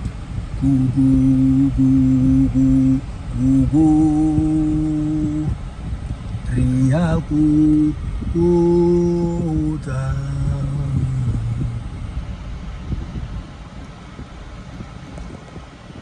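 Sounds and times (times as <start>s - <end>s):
steady low rumble: 0.0s - 16.0s
person humming a slow tune: 0.6s - 5.6s, 6.5s - 11.9s.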